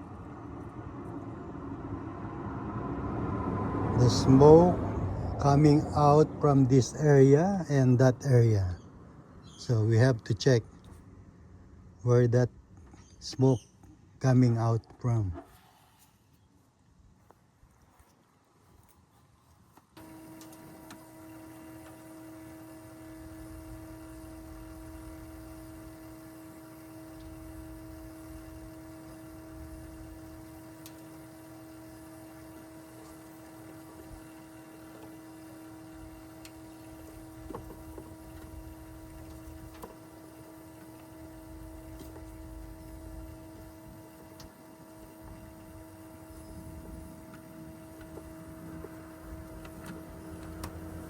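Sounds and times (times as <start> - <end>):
smoke machine humming: 20.0 - 51.0.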